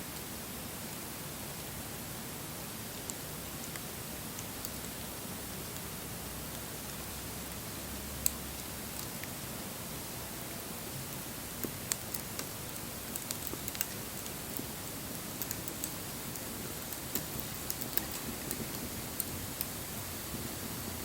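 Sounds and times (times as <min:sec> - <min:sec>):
fire crackles and pops: 0:11.4 - 0:20.4.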